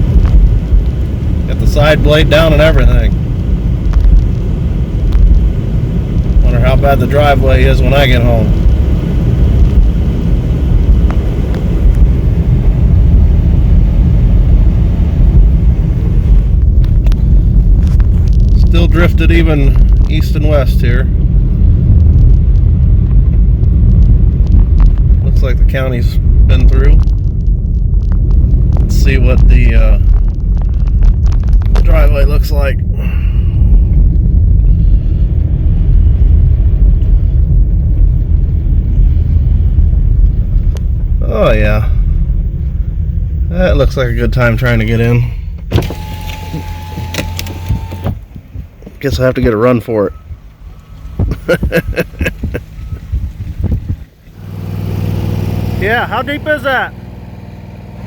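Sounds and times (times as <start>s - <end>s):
vehicle rumble from inside cab: 0.0s - 58.0s.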